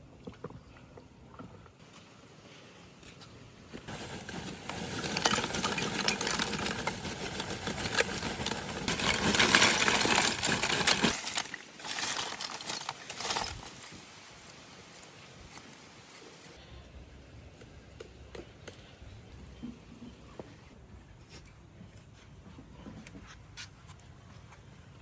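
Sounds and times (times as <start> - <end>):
rapid clattering and scraping: 3.8 - 14.2.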